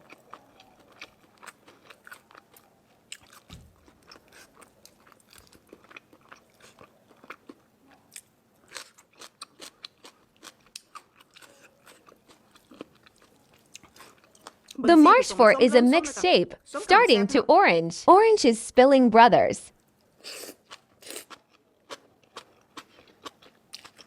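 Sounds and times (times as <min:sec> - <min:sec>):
person chewing crisp food: 0:00.0 - 0:14.9, 0:19.8 - 0:24.0.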